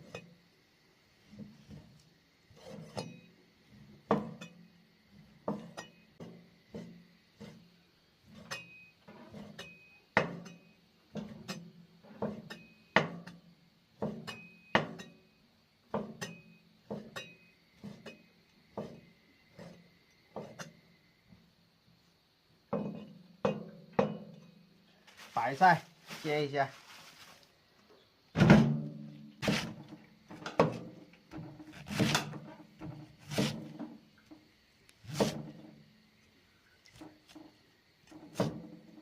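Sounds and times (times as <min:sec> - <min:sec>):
knife chopping on wooden board: 0:31.7 - 0:32.3, 0:33.2 - 0:33.6, 0:35.1 - 0:35.4.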